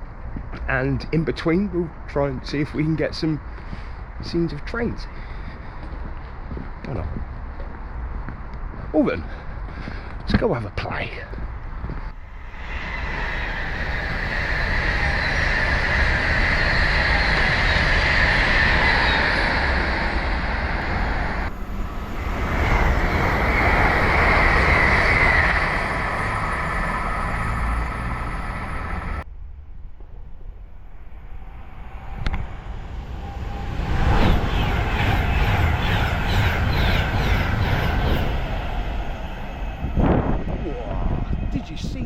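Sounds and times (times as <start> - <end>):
train passing at speed: 10.9 - 29.3, 30.4 - 42.0.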